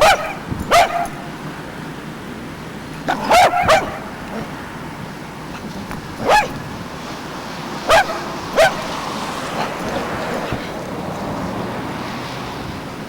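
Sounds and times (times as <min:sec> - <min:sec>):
dog barking: 0:00.0 - 0:01.3, 0:03.0 - 0:04.7, 0:05.5 - 0:06.8, 0:07.8 - 0:10.8.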